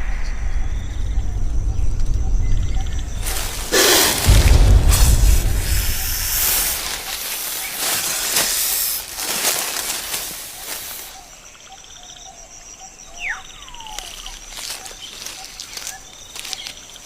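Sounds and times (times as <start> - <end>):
sharp crackles: 3.0 - 11.2, 13.9 - 17.0
breathy hissing and rustling: 3.2 - 11.2.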